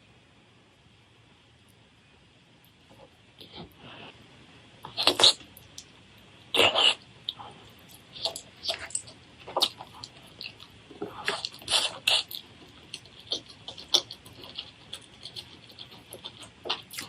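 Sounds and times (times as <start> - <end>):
crunchy chewing: 4.8 - 5.9, 6.5 - 17.0.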